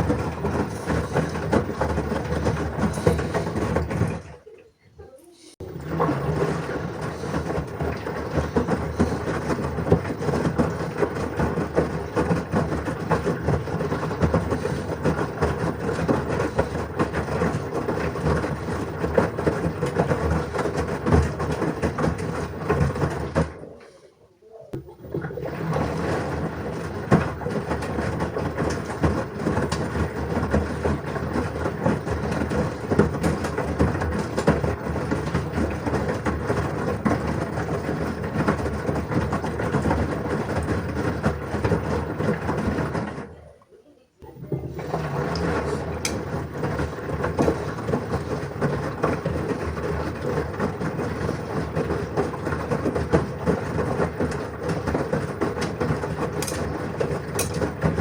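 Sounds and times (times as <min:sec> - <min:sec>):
washing machine drum rumbling: 0:00.0 - 0:43.6, 0:44.2 - 0:58.0
small clicks and knocks: 0:56.4 - 0:56.7, 0:57.4 - 0:57.7.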